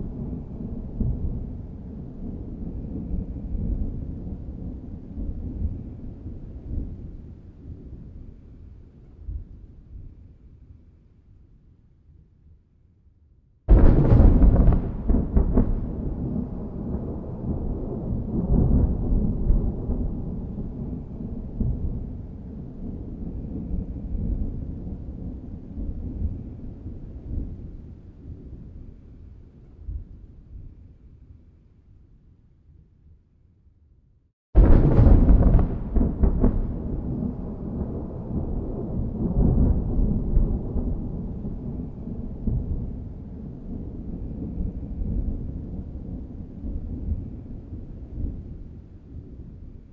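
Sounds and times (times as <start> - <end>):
low thunder rumble: 0.0 - 10.3, 13.7 - 31.1, 34.6 - 49.9
thunder cracks: 13.7 - 22.2, 34.6 - 43.0.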